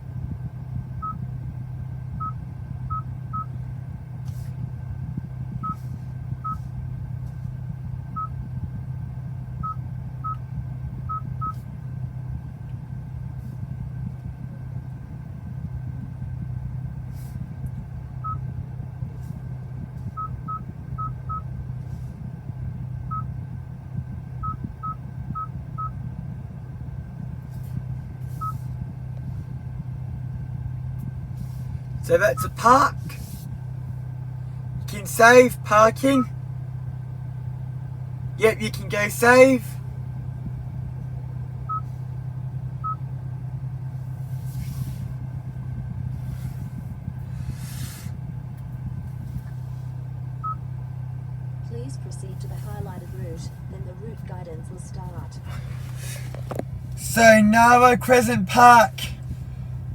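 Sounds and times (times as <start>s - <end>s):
car engine idling: 0.0s - 59.9s
steady low hum: 0.0s - 59.9s
passing traffic: 16.9s - 43.0s, 43.6s - 59.9s.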